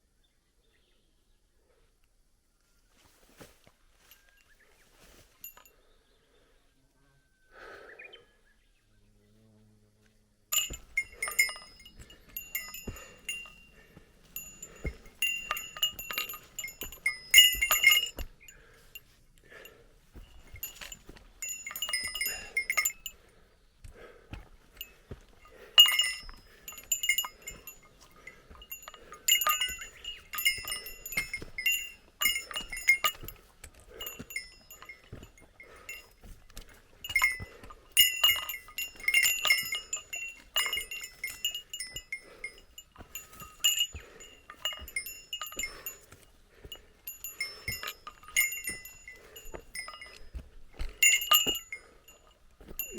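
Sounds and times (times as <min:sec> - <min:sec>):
small metal bell jingling: 0:05.1 - 0:05.8, 0:10.5 - 0:23.3, 0:24.6 - 0:52.9.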